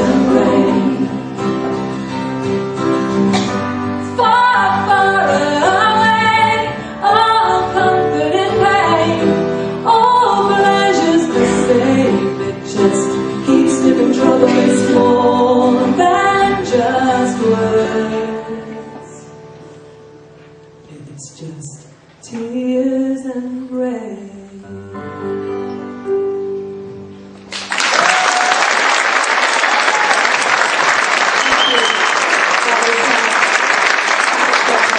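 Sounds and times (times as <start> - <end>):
piano chords: 0.0 - 20.9, 24.3 - 27.7.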